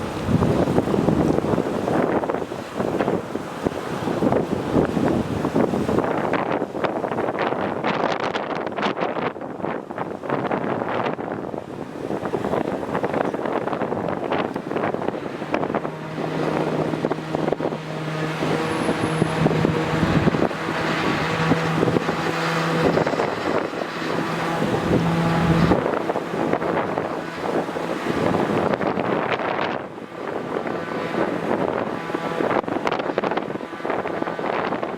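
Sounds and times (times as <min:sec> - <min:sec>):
outdoor noise rushing: 0:00.0 - 0:34.9
engine humming: 0:12.0 - 0:34.3.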